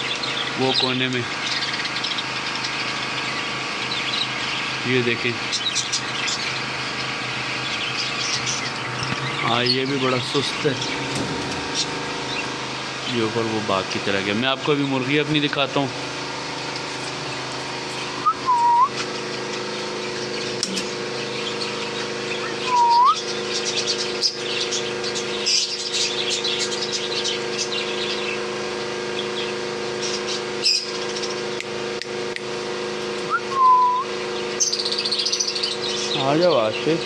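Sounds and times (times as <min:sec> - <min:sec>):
birds chirping and twittering: 0:00.0 - 0:37.0
steady low hum: 0:00.0 - 0:37.0
short swooping whistles: 0:18.2 - 0:19.0, 0:22.7 - 0:23.2, 0:33.3 - 0:34.1.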